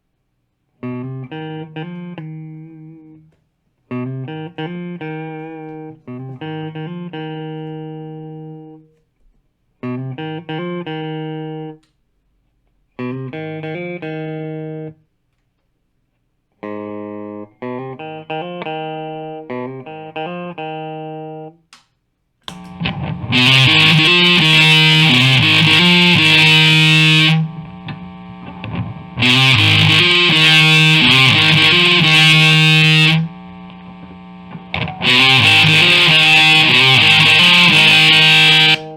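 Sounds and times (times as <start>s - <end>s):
clean electric guitar chords: 0.8s - 3.3s, 3.9s - 8.8s, 9.8s - 11.8s, 13.0s - 15.0s, 16.6s - 21.5s, 22.5s - 38.9s
distorted heavy guitar chords: 22.5s - 38.9s.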